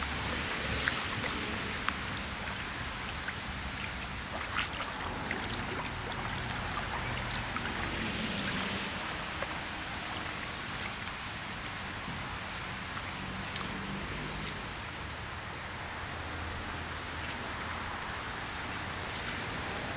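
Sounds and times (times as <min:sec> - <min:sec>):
raindrops ticking: 0:00.0 - 0:15.1
rainwater running: 0:00.0 - 0:19.9
steady rain: 0:00.0 - 0:19.9.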